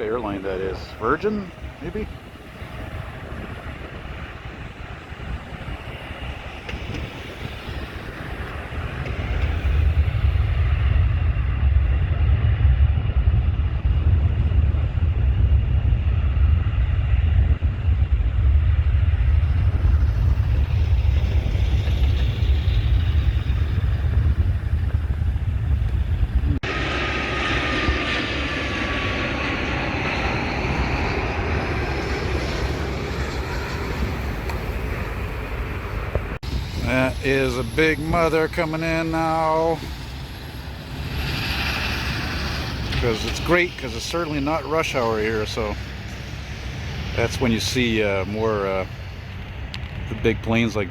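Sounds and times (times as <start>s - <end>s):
jet engines rumbling and whining: 0.0s - 50.9s.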